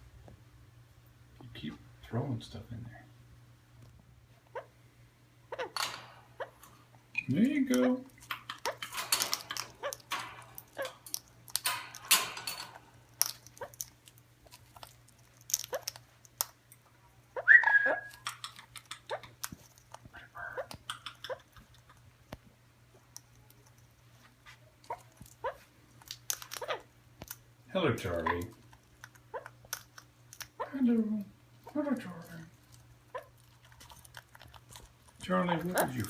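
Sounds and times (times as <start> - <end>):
bird squawk: 4.5 - 4.7, 5.5 - 6.6.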